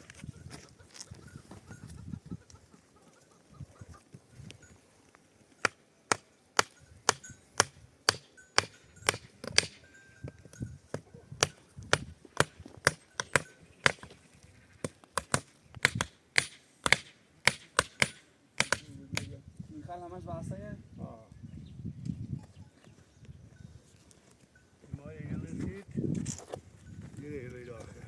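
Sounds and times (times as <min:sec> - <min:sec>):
hand tool striking: 0:05.6 - 0:14.2, 0:14.8 - 0:19.3.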